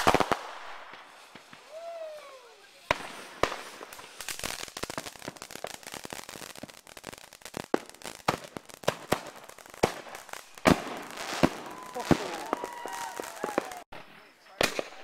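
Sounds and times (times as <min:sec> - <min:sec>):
fireworks popping and crackling: 0:00.0 - 0:15.0
hissing spray of sparks: 0:01.0 - 0:10.8
firework bang: 0:07.7 - 0:14.0.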